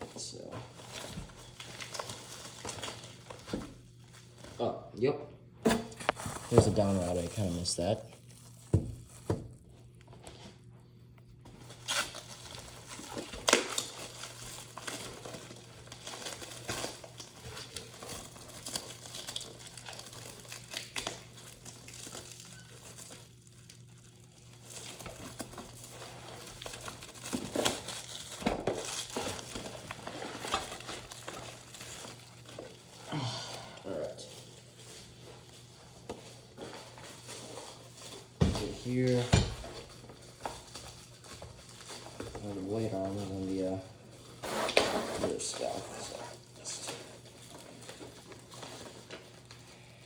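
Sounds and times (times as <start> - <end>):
plastic wrapping crinkling: 0.7 - 4.5, 6.0 - 10.4, 11.6 - 33.1, 33.8 - 50.0.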